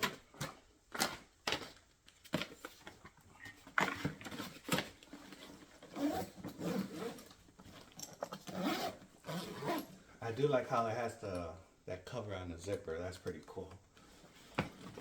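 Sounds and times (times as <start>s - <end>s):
backpack clicks and rustles: 0.0s - 10.0s, 14.0s - 15.0s.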